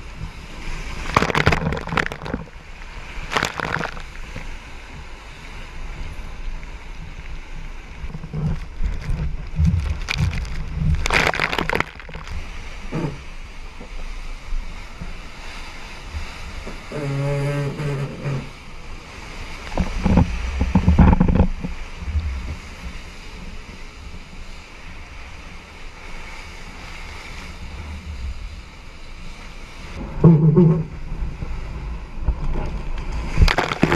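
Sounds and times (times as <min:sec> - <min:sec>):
wind buffeting microphone: 0:00.0 - 0:14.0
rushing sea water: 0:00.0 - 0:33.9.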